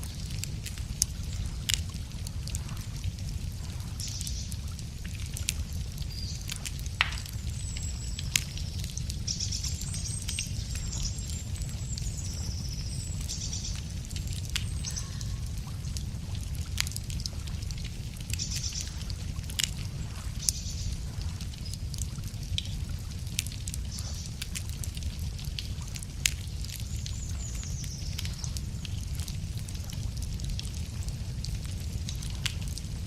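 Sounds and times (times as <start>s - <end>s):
campfire crackling: 0.0s - 33.0s
birds singing: 7.2s - 16.0s, 27.0s - 28.5s.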